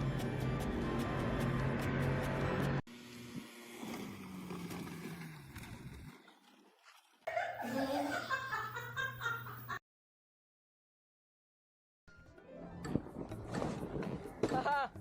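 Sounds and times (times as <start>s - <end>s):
person laughing: 7.3s - 9.8s.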